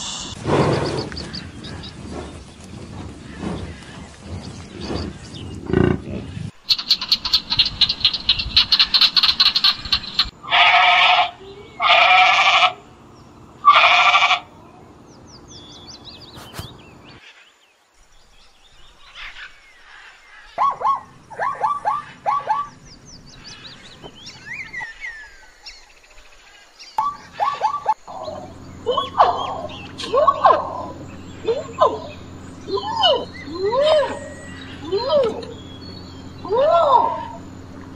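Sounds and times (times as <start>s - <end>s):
rapid rattling trill: 6.6s - 10.4s
zebra barking yelps: 6.7s - 12.8s, 13.6s - 14.5s, 20.4s - 22.8s, 27.0s - 37.7s
long drawn-out animal calls: 6.7s - 13.0s, 13.6s - 14.6s, 26.4s - 37.8s
faint chirping: 14.4s - 37.9s.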